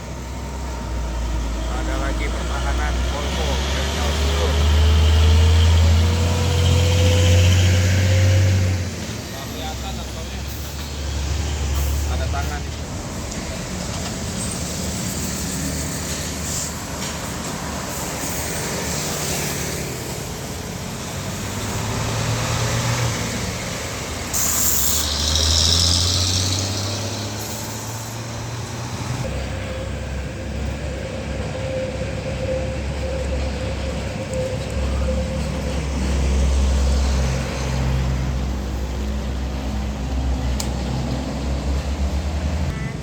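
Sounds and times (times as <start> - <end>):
diesel trucks passing: 0.0 - 43.0
burst of hiss: 24.3 - 28.3.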